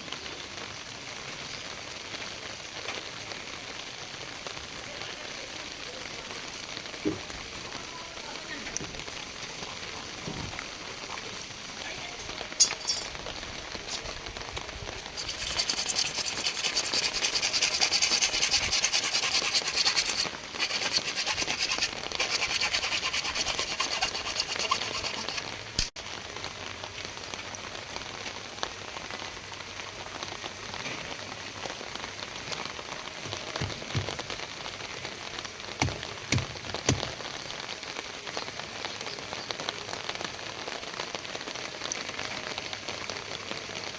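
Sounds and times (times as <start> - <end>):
steady rain falling: 0.0 - 22.3, 25.4 - 43.9
rough rasping rub: 15.1 - 25.9.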